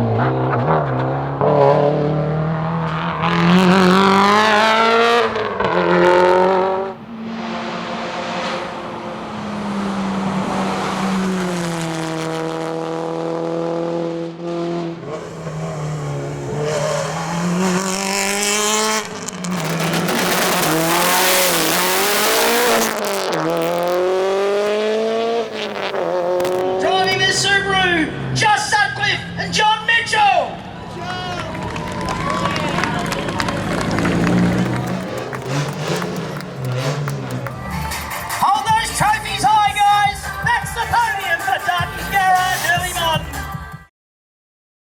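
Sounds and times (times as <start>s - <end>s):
racing car engine revving: 0.0s - 29.6s, 30.6s - 40.9s
loud rushing noise: 31.0s - 39.1s.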